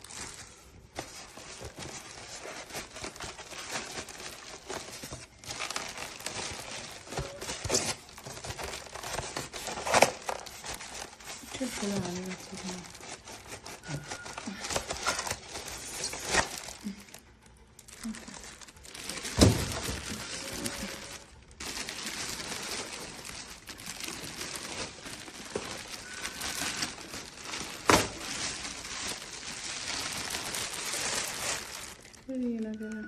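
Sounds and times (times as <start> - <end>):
rustling and handling noise: 0.0 - 33.0.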